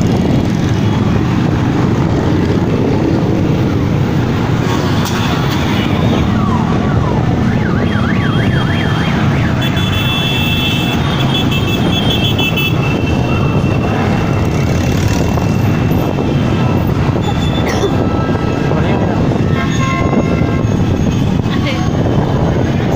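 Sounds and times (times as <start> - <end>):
motorcycle engines running: 0.0 - 22.9
siren yelping: 5.9 - 9.7.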